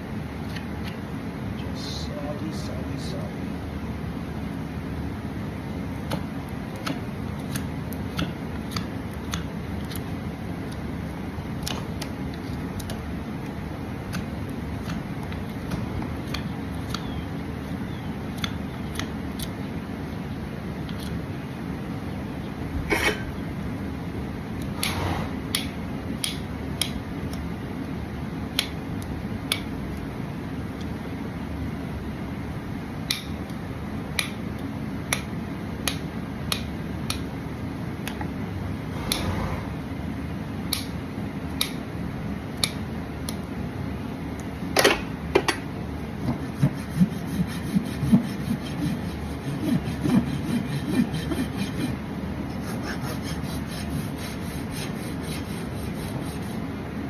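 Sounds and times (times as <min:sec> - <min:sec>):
tool scraping hoof: 0:46.2 - 0:56.7.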